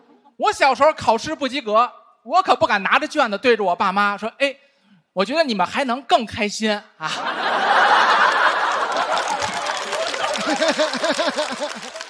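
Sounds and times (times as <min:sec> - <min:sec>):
audience laughing: 0:07.1 - 0:12.0.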